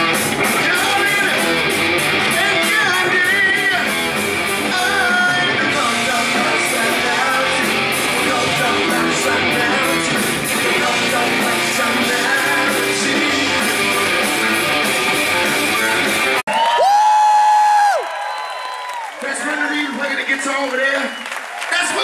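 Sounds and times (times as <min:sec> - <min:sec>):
electric guitar: 0:00.0 - 0:16.4
live rock band playing: 0:00.0 - 0:16.5
person singing: 0:04.7 - 0:14.7.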